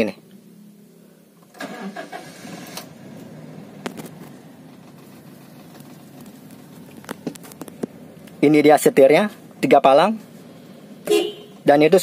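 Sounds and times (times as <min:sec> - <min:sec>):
car engine idling: 0:00.3 - 0:12.0.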